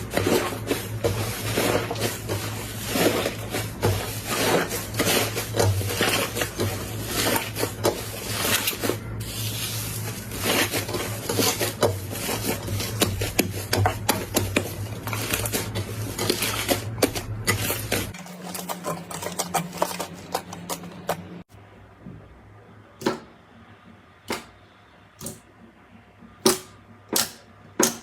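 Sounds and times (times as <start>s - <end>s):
slime crackling and squishing: 0.0s - 21.4s.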